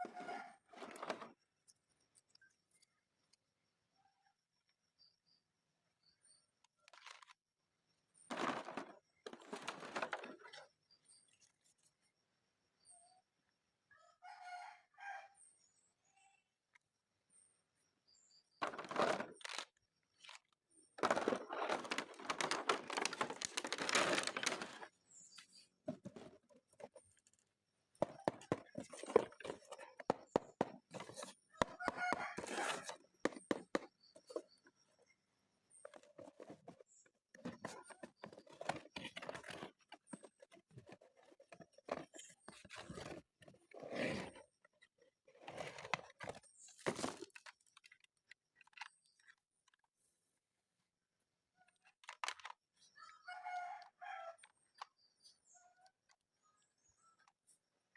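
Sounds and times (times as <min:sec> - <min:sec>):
packaging rustling and tearing: 0:21.0 - 0:24.9.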